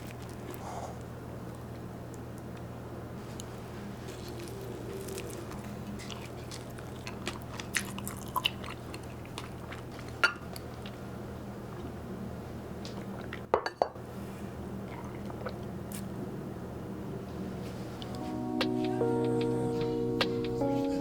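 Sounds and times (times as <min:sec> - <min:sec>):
soft eating crunches: 0:00.0 - 0:01.8, 0:02.4 - 0:13.5, 0:14.3 - 0:16.2
steady low hum: 0:00.0 - 0:21.0.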